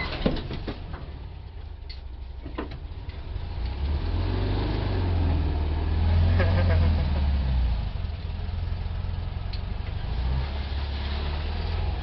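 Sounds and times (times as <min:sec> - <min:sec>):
vehicle engine idling: 0:00.0 - 0:03.9, 0:05.2 - 0:10.3.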